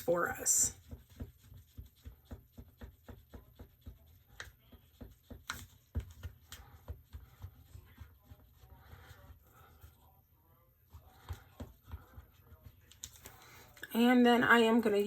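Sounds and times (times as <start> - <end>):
tool tapping and scraping in a cup: 0.1 - 10.0, 10.9 - 13.9.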